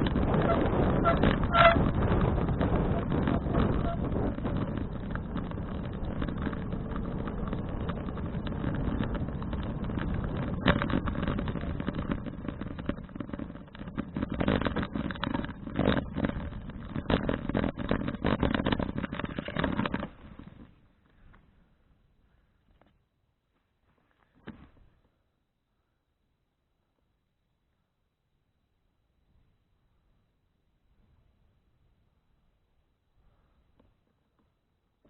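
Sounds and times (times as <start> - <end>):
wind rush: 0.0 - 13.0
sharp knocks over bumps: 0.0 - 20.7
bicycle rattling: 0.0 - 21.3.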